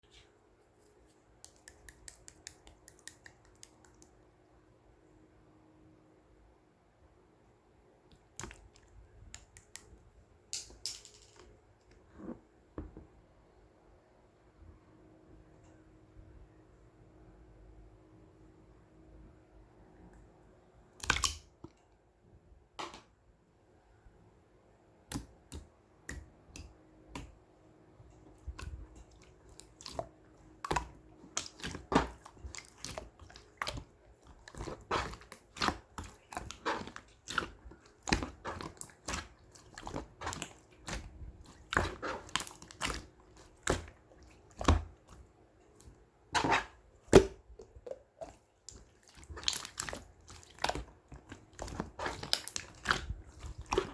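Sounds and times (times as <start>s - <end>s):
slime squished by hand: 21.0s - 21.5s, 28.3s - 53.9s.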